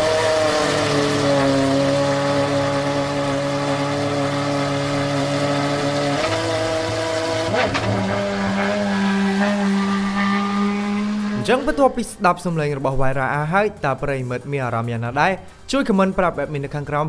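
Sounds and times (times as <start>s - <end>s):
car pulling away: 0.0s - 11.9s.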